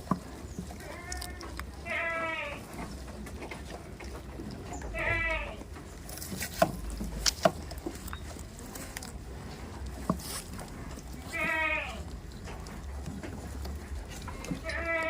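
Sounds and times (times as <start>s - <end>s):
goat bleating: 0.8s - 2.8s, 4.8s - 5.7s, 11.2s - 12.1s, 14.3s - 15.0s.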